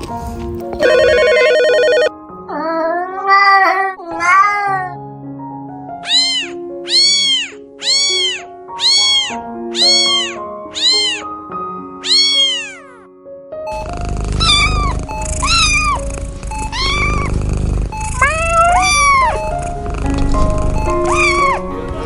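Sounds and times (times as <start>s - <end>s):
background music: 0.0s - 22.0s
cat meowing: 1.8s - 5.0s, 6.0s - 11.4s, 12.0s - 13.0s, 13.7s - 21.7s.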